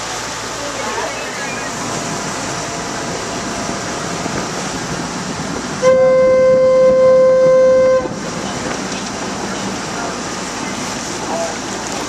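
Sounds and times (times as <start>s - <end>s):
steady horn blast: 5.8s - 8.2s.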